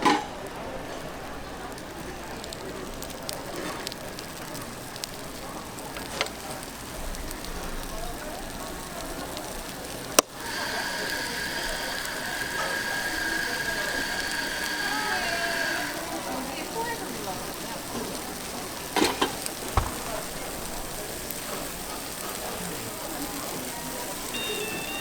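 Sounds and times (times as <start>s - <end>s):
steady high-pitched whine: 10.3s - 16.3s.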